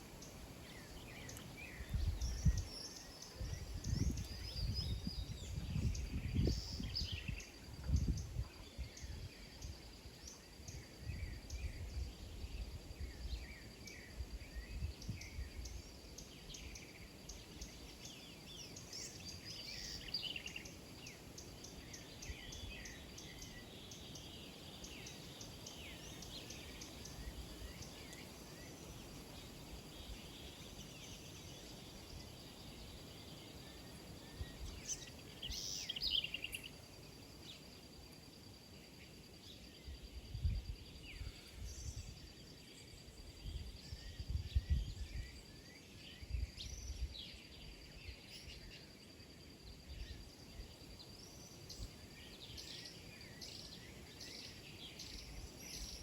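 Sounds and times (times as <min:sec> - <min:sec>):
small birds chirping: 0:00.0 - 0:49.0, 0:49.6 - 0:56.0.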